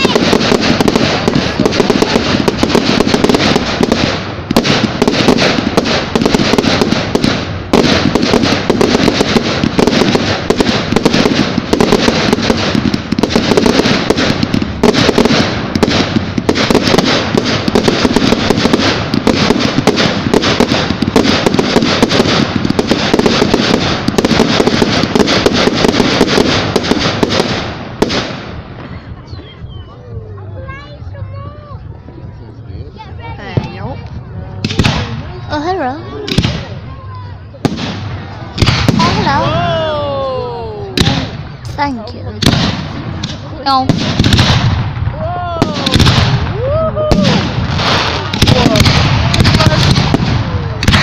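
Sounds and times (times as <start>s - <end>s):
fireworks crackling bangs: 0.0s - 29.3s, 33.0s - 51.0s.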